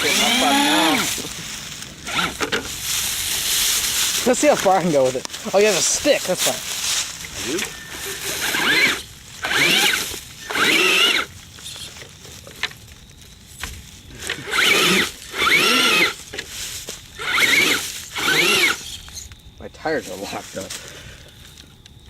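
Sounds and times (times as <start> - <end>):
electric motor whining: 0.0 - 4.5, 7.2 - 11.8, 14.2 - 16.4, 17.1 - 19.2.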